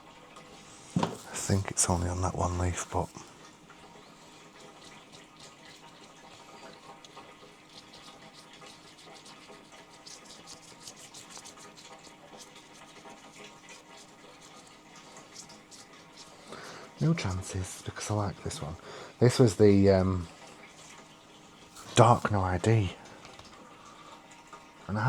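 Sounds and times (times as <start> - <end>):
faint trickling water: 0.0 - 25.0
small light clicks and rustles: 20.3 - 24.7.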